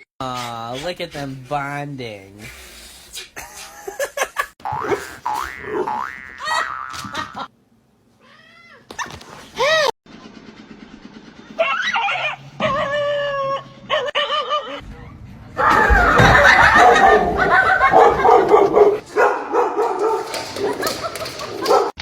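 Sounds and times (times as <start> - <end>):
dog howling: 11.6 - 14.1
dog barking loudly: 16.6 - 20.9, 21.6 - 22.0.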